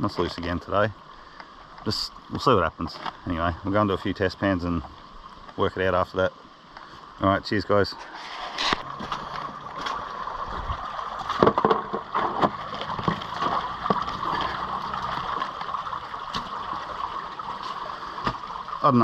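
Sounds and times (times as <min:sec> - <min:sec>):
water rushing over rocks: 0:00.0 - 0:19.0
knocks and clicks: 0:11.3 - 0:14.1.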